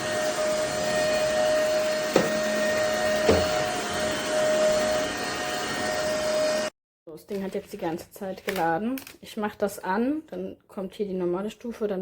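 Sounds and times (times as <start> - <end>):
stick vacuum cleaner running: 0.0 - 6.7.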